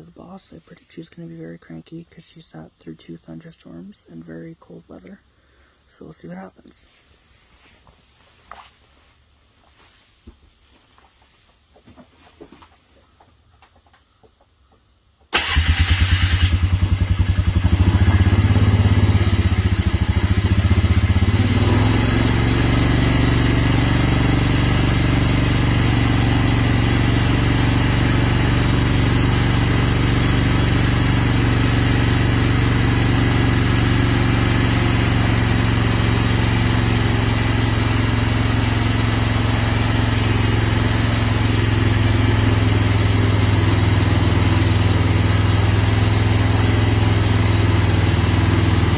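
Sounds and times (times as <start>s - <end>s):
engine starting and idling: 15.3s - 48.9s.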